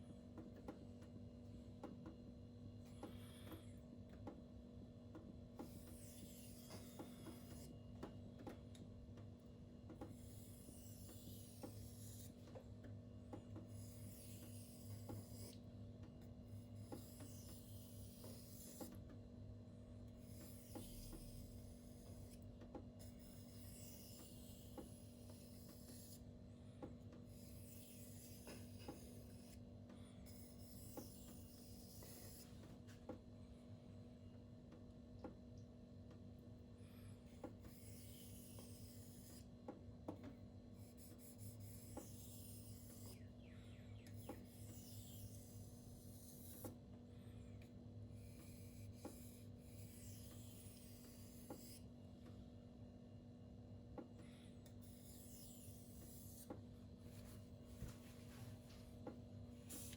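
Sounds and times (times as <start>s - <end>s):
knife blade scraping on whetstone: 5.7s - 7.7s, 10.1s - 12.4s, 13.7s - 15.6s, 16.8s - 18.9s, 20.2s - 22.4s, 23.0s - 26.2s, 27.3s - 29.6s, 30.3s - 32.5s, 37.7s - 39.5s, 40.8s - 43.2s, 44.2s - 46.7s, 48.2s - 51.8s, 54.8s - 56.5s, 59.7s - 59.9s.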